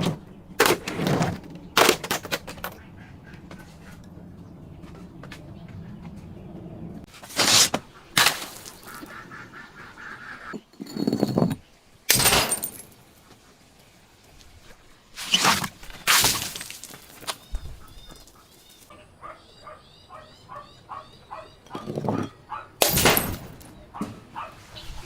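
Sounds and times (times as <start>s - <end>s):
objects crushed and breaking: 7.1s - 9.1s, 10.6s - 13.0s, 15.2s - 18.9s, 22.8s - 23.7s.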